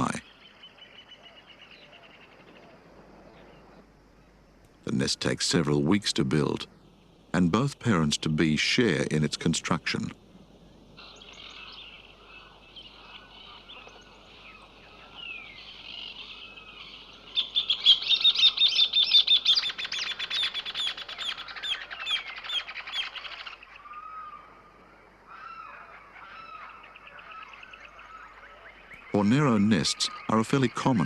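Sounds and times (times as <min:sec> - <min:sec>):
bird chirping and calling: 0:00.0 - 0:02.6, 0:11.0 - 0:24.4, 0:25.3 - 0:31.0.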